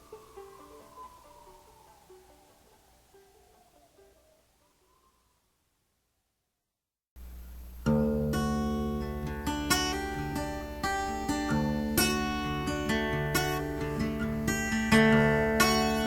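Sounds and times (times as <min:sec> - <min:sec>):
acoustic guitar strumming chords: 0:07.2 - 0:16.0.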